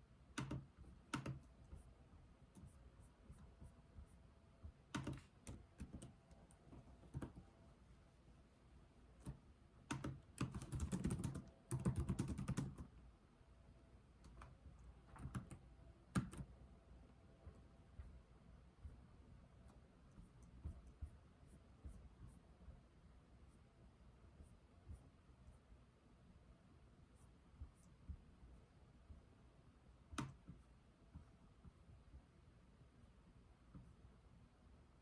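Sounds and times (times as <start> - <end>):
computer keyboard typing: 0.4 - 1.5, 4.9 - 6.1, 7.0 - 7.4, 9.2 - 12.9, 14.3 - 16.5.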